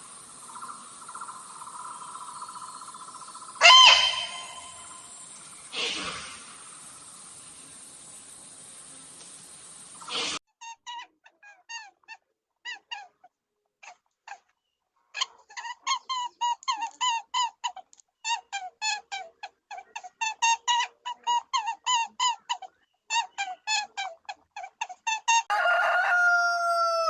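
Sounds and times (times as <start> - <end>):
animal squeaky calls: 3.5 - 5.2.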